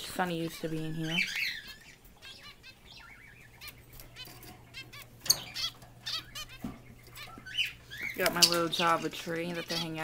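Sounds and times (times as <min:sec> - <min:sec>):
finches chirping: 0:00.0 - 0:10.0.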